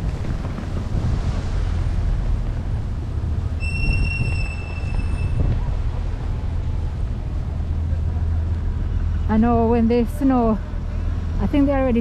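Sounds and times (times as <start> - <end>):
bus engine and road rumble: 0.0 - 12.0
brakes squealing: 3.5 - 9.4.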